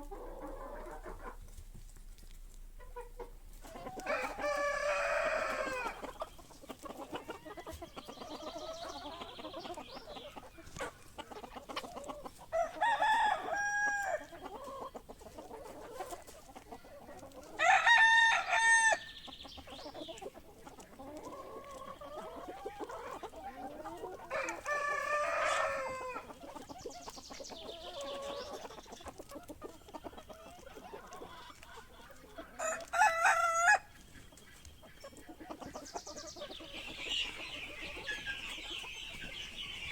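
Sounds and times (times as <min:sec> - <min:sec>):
chickens clucking: 0:00.0 - 0:39.9
roosters crowing: 0:03.6 - 0:06.2, 0:12.5 - 0:14.5, 0:17.5 - 0:19.2, 0:24.0 - 0:26.4, 0:32.4 - 0:33.9.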